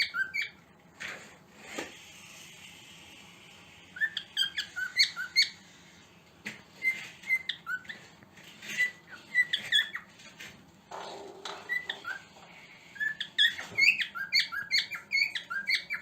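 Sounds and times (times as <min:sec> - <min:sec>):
cockatiel chirping: 0:00.0 - 0:00.6, 0:04.0 - 0:05.8, 0:06.7 - 0:10.2, 0:11.5 - 0:12.2, 0:12.9 - 0:16.0.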